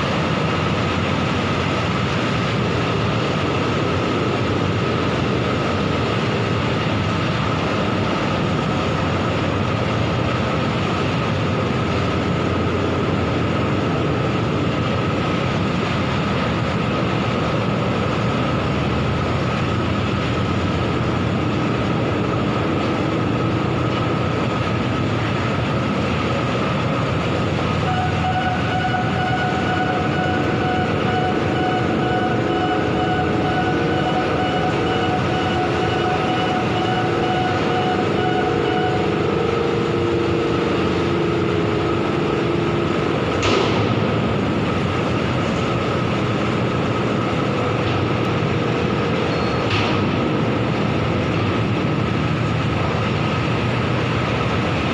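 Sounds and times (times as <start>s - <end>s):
machine rumbling and grinding: 0.0s - 54.9s
higher whining tones: 27.4s - 45.9s.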